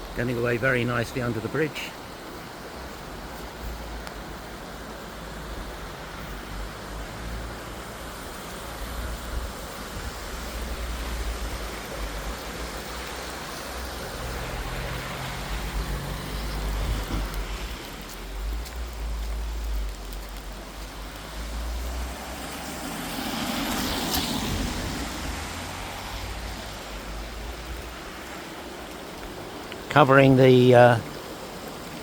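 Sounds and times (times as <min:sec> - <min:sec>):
road traffic: 0:00.0 - 0:32.0
brook rushing: 0:05.9 - 0:32.0
vehicle passing: 0:11.4 - 0:18.0, 0:20.8 - 0:28.8.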